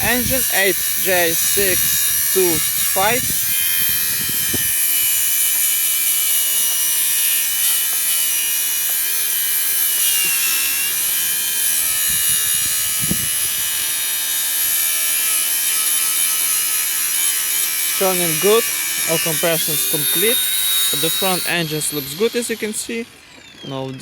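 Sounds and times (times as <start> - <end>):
high-pitched electrical buzz: 0.0 - 23.1
engine turning over: 7.8 - 15.6, 18.0 - 24.0.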